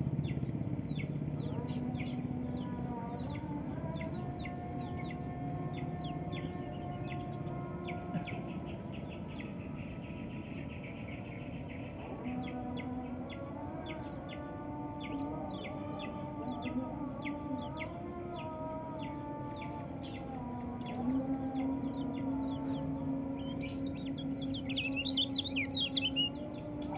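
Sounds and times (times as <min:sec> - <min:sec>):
steady lower calls: 0:00.0 - 0:26.9
bird singing high notes: 0:22.0 - 0:26.9.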